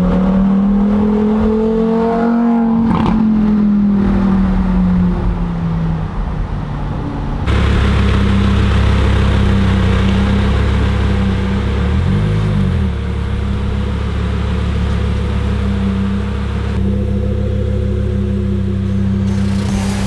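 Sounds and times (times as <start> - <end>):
car engine revs dropping: 7.5 - 17.3
loud engine drone: 7.5 - 20.0
hiss: 19.3 - 20.0.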